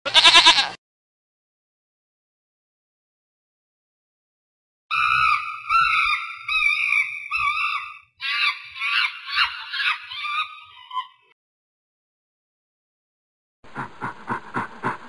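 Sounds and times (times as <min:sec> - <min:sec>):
chimpanzee screaming: 0:04.9 - 0:11.3.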